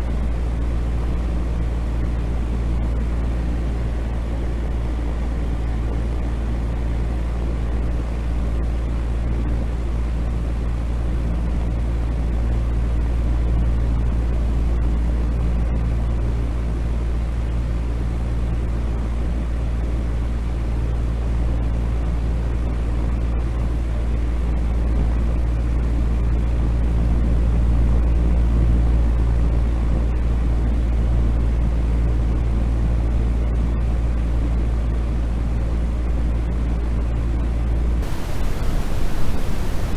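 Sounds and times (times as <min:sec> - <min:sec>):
deep steady noise: 0:38.0 - 0:39.9.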